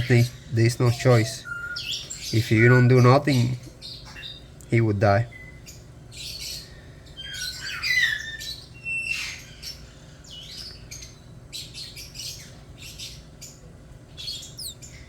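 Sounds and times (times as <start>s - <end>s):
bird chick squeaky cries: 0.0s - 4.6s, 5.3s - 13.6s, 14.2s - 15.0s.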